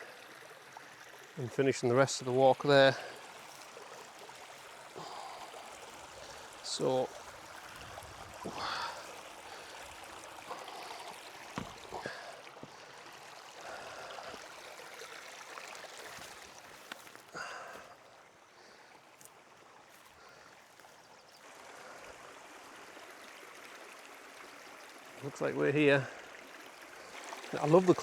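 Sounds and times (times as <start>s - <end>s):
short knocks: 11.5s - 12.8s.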